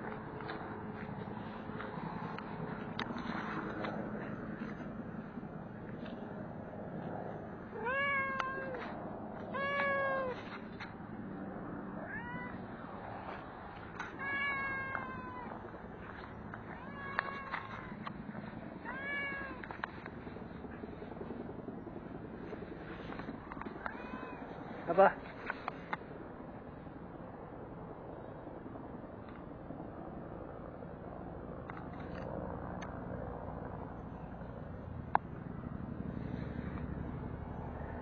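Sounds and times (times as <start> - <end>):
cat meowing: 7.7 - 10.5, 12.0 - 12.6, 14.1 - 15.6, 16.7 - 18.0, 18.8 - 19.7, 23.8 - 24.5.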